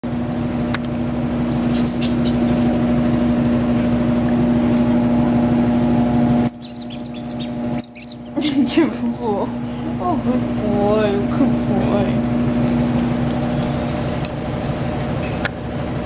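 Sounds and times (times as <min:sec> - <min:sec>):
steady mechanical hum: 0:00.0 - 0:16.0
puppies squeaking: 0:01.4 - 0:02.8, 0:06.4 - 0:08.4.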